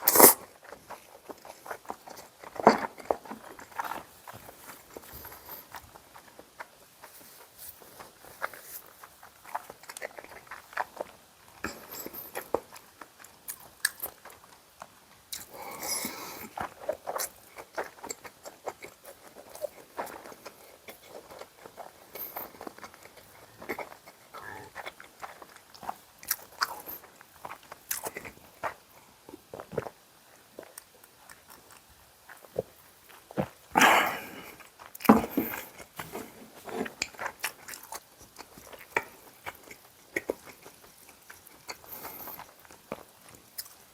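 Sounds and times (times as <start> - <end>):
wet mouth clicks: 0.0 - 0.5
person chewing food: 0.0 - 43.9.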